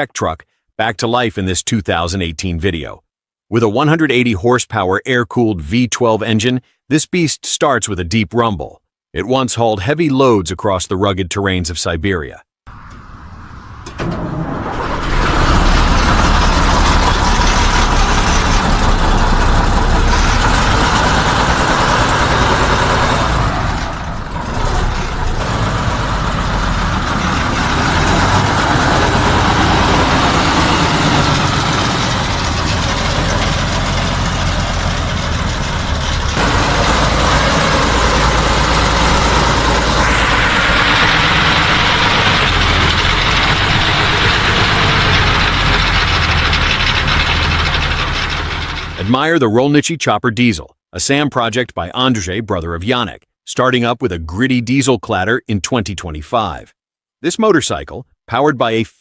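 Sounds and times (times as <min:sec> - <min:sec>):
truck diesel engine rumbling: 0:12.7 - 0:49.7.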